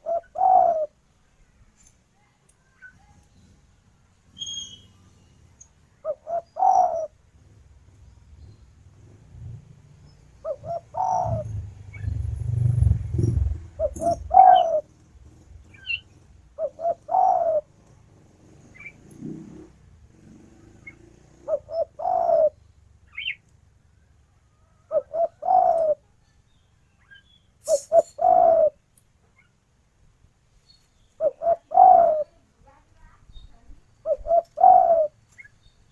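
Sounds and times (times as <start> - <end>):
dove cooing: 0.0 - 1.0, 6.0 - 7.6, 10.3 - 17.9, 18.6 - 22.6, 24.6 - 26.0, 27.6 - 28.8, 31.2 - 32.4, 33.3 - 35.2
small birds chirping: 0.0 - 29.8, 30.5 - 35.9.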